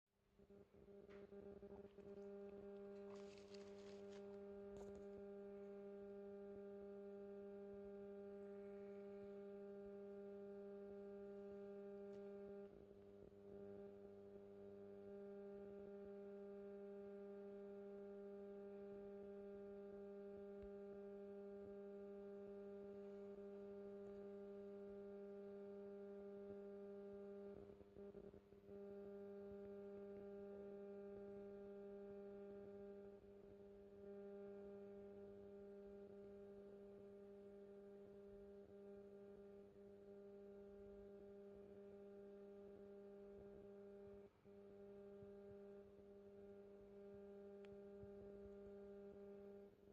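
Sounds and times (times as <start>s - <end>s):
faint electrical hum: 0.4s - 49.7s.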